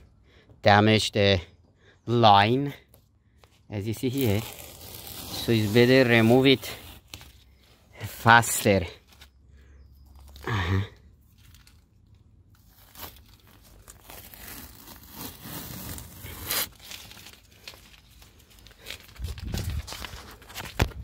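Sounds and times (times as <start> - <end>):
masking tape peeling off: 4.0 - 7.4, 12.6 - 20.7.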